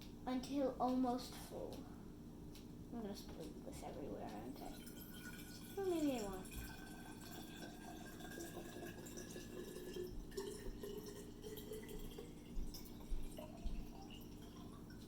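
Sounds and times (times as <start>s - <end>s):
water trickling into glass bottle: 4.5s - 15.0s.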